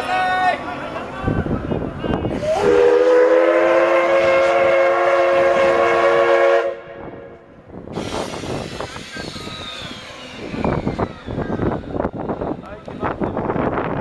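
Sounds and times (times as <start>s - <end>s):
steam locomotive whistle: 2.3s - 7.3s.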